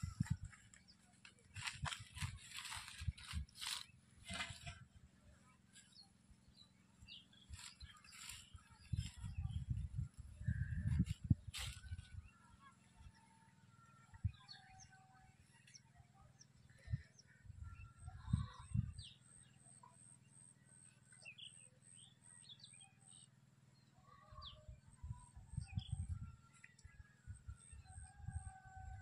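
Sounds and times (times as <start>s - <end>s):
small birds chirping: 0.0s - 4.8s, 5.7s - 13.4s.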